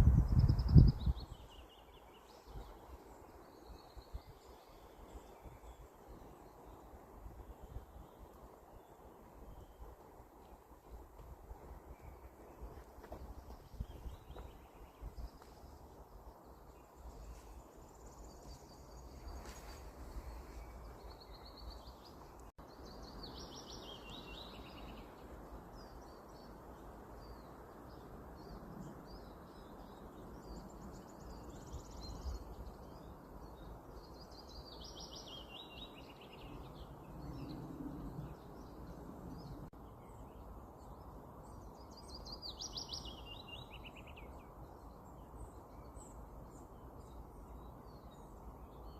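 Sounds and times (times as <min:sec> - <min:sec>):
songbird trilled song: 0:27.2 - 0:48.9.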